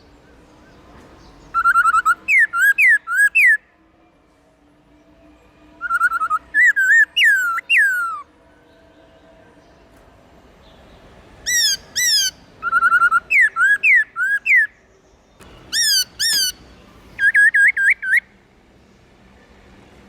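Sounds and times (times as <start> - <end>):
bird singing whistled phrases: 1.5 - 3.6, 5.8 - 8.2, 11.5 - 14.8, 15.5 - 16.6, 17.2 - 18.3.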